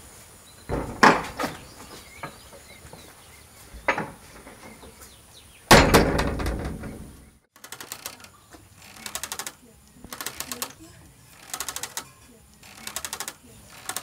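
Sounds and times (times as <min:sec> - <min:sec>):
wooden door slamming shut: 0:00.7 - 0:02.4, 0:05.7 - 0:07.2.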